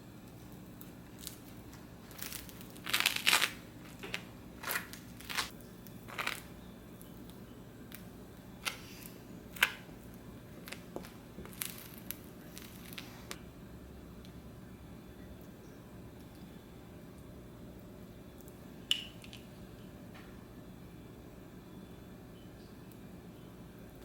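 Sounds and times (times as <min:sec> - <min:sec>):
crinkling and scraping: 0:00.4 - 0:06.5, 0:10.6 - 0:13.4.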